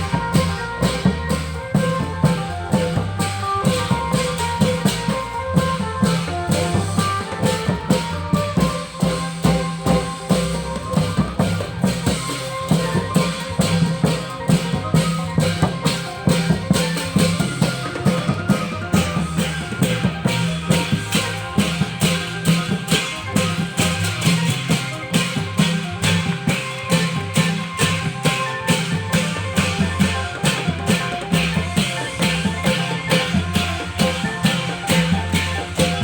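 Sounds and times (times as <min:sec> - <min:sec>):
cymbals: 0:00.0 - 0:36.0
drums beating fast: 0:00.0 - 0:36.0.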